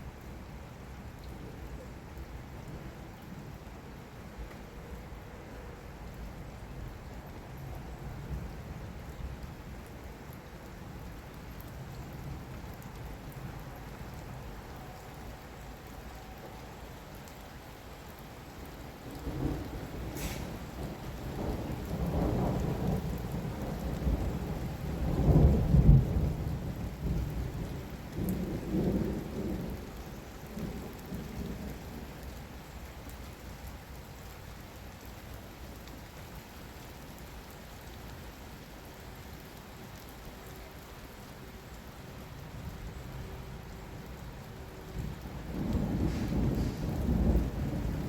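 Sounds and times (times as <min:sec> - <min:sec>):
heavy rain: 0:00.0 - 0:48.0
rolling thunder: 0:19.2 - 0:29.9, 0:45.0 - 0:48.0.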